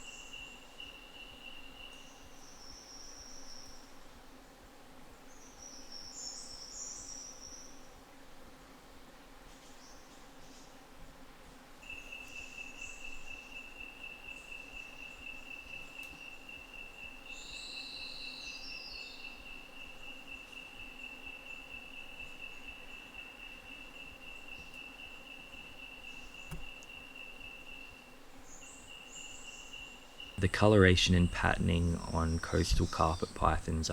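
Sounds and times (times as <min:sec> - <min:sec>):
faint chirps: 0:11.8 - 0:33.9
insect trilling: 0:11.8 - 0:33.9.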